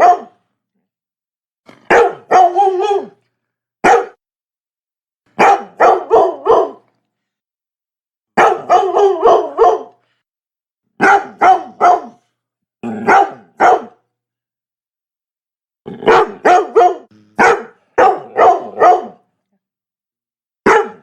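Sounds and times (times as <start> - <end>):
dog barking: 0.0 - 0.4, 1.8 - 3.2, 3.8 - 4.2, 5.4 - 6.9, 8.4 - 10.0, 11.0 - 12.3, 12.9 - 14.0, 16.0 - 19.2, 20.6 - 21.0.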